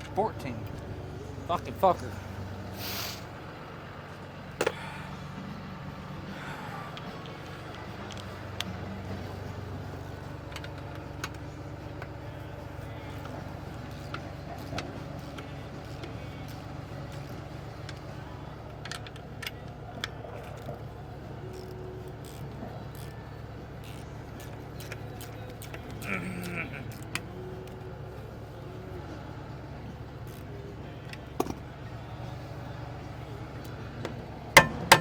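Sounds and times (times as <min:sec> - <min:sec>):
engine idling: 0:00.0 - 0:35.0
hand tools clinking: 0:34.6 - 0:35.0.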